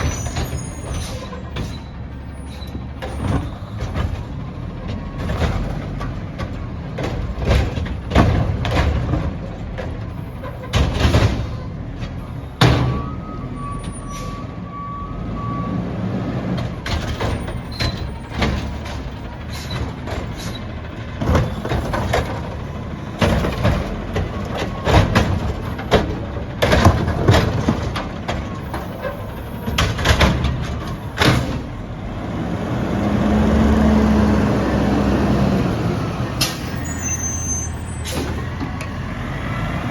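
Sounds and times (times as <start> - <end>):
truck beeps: 0.0 - 8.6, 10.2 - 39.8
garbage truck engine: 0.0 - 39.9
engine revving: 32.1 - 36.4.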